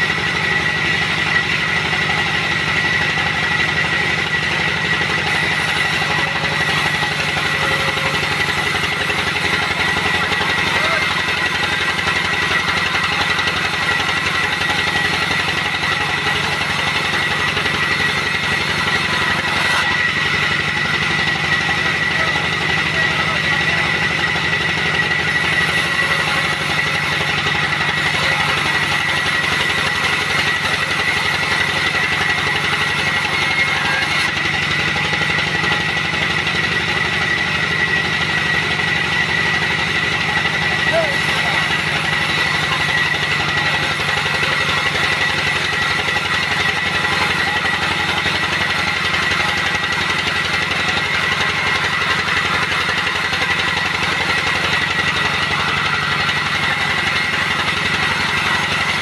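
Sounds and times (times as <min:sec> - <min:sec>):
sawmill machinery drone and whine: 0:00.0 - 0:59.0.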